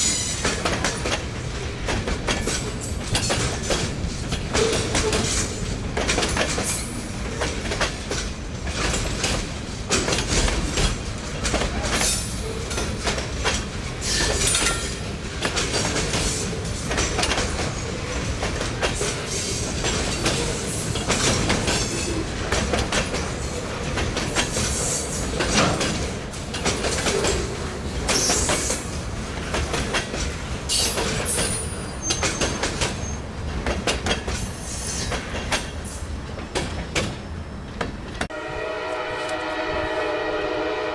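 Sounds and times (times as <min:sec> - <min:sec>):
wheels clickety-clack over rails: 0:00.0 - 0:38.3
railroad cars rumbling past: 0:00.0 - 0:40.9
high wheel squeals: 0:30.7 - 0:33.3.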